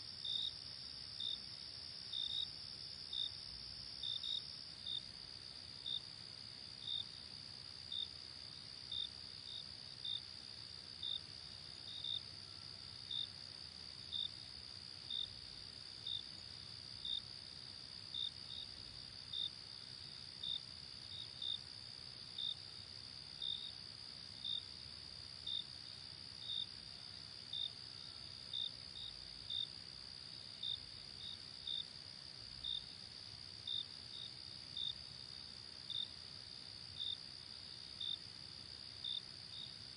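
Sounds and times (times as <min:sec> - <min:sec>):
cricket chirps: 0:00.0 - 0:39.9
faint background hiss: 0:00.0 - 0:39.9.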